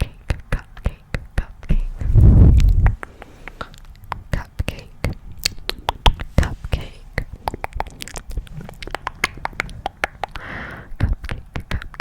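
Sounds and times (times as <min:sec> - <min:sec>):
wet mouth clicks and smacks: 0:07.2 - 0:10.5.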